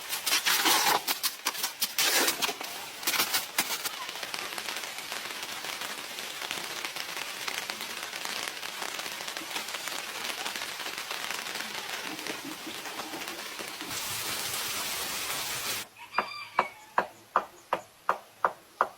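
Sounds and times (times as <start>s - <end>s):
rain pattering: 0.0s - 15.9s
sharp crackling and clicking: 0.1s - 13.9s.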